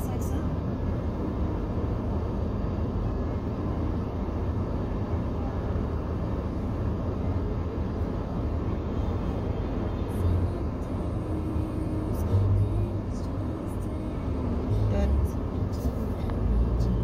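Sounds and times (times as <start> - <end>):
car idling from inside: 6.2 - 17.0.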